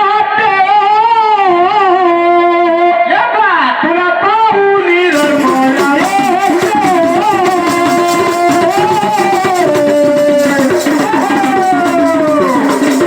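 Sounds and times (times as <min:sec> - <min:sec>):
rhythmic percussion: 0:04.9 - 0:13.0
shaker rattle: 0:05.0 - 0:13.0.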